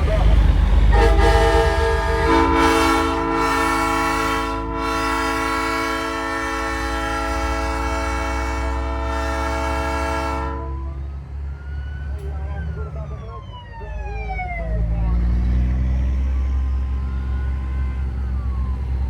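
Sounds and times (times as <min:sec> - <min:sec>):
train horn chord blast: 0:00.9 - 0:11.0.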